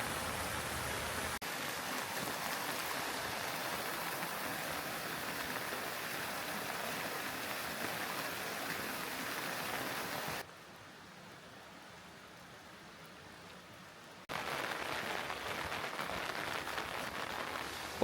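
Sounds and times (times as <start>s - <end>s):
mountain stream rushing: 0.0s - 10.5s
steady rain falling: 0.0s - 18.0s.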